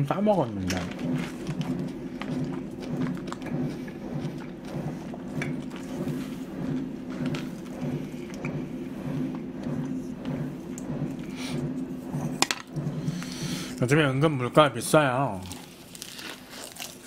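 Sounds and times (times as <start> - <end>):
steady low hum: 0.0 - 17.0
person chewing: 0.7 - 4.5, 15.4 - 17.0.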